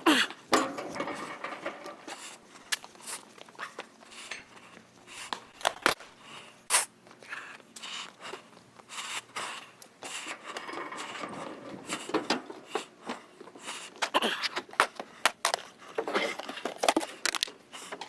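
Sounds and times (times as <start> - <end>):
handling knocks and scrapes: 0.5 - 2.9.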